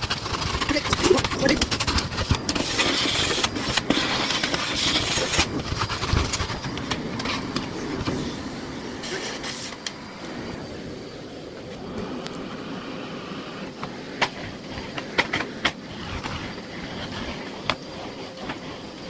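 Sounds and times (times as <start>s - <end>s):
debris clicking in vacuum: 0.0s - 8.3s
vacuum cleaner running: 0.0s - 19.0s.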